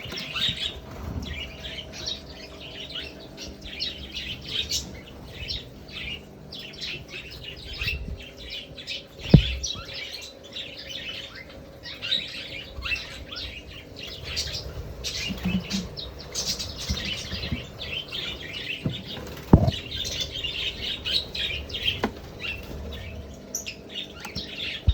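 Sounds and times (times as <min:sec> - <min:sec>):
budgerigars chirping and chattering: 0:00.0 - 0:24.9
sharp knock: 0:09.3 - 0:09.6, 0:19.5 - 0:19.8.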